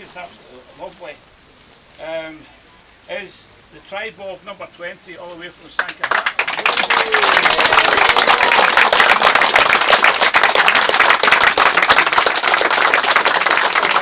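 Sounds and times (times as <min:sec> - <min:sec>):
crowd applauding: 0:05.8 - 0:14.0.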